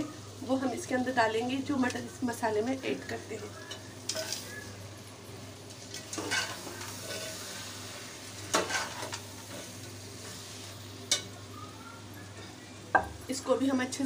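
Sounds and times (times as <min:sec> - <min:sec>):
spices sizzling in a pot: 0:00.0 - 0:14.0
spoon clinking and scraping pot: 0:06.0 - 0:07.5, 0:08.5 - 0:09.7.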